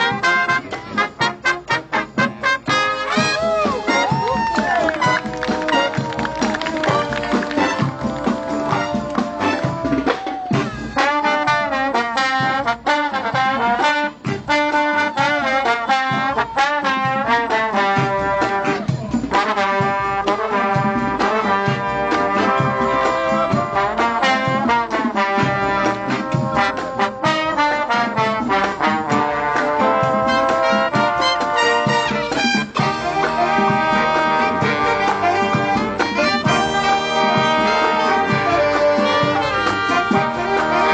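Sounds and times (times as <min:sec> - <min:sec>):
brass horn section playing: 0:00.0 - 0:40.9.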